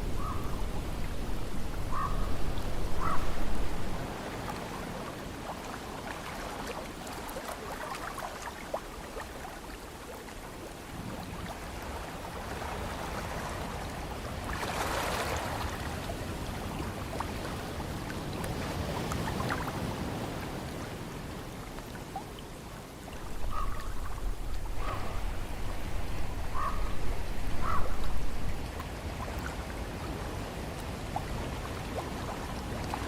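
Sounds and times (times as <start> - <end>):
wind buffeting microphone: 0.0 - 4.3, 23.2 - 28.8
ocean surf washing: 0.0 - 7.8, 10.8 - 33.0.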